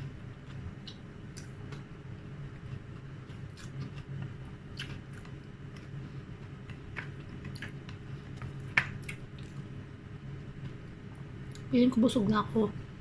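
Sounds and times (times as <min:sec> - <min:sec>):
steady low hum: 0:00.0 - 0:13.0
close chewing with mouth smacks: 0:02.6 - 0:05.9, 0:06.6 - 0:09.6.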